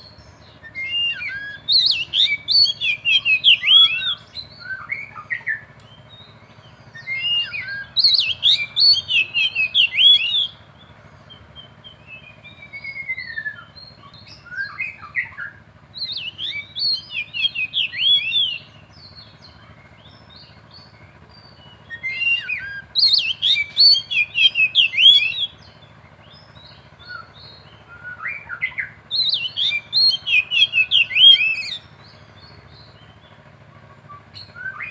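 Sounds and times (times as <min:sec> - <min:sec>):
birds whistling song: 0:00.0 - 0:34.9
sliding bird whistle: 0:00.7 - 0:05.4, 0:07.0 - 0:10.6, 0:16.0 - 0:18.7, 0:22.0 - 0:25.6, 0:28.0 - 0:31.8.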